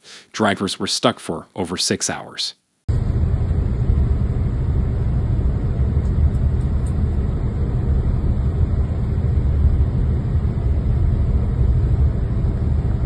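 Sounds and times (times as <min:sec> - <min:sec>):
loud low outdoor rumble: 0:02.9 - 0:13.0.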